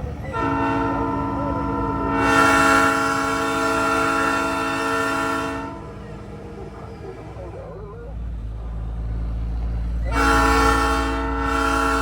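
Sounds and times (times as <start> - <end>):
train horn chord: 0.3 - 6.2, 10.0 - 12.0.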